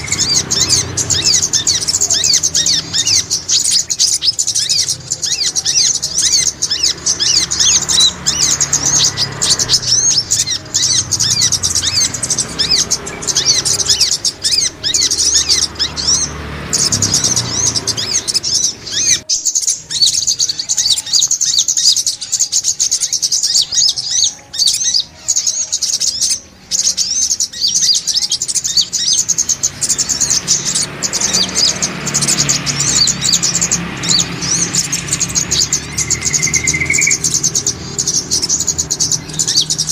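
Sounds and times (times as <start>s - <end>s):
sunbird chirping: 0.0s - 39.9s.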